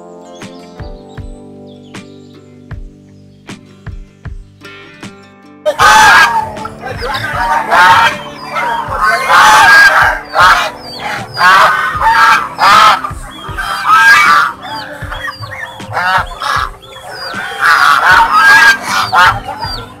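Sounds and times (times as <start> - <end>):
small birds chirping: 0.0 - 5.0, 5.8 - 20.0
swans calling: 5.7 - 20.0.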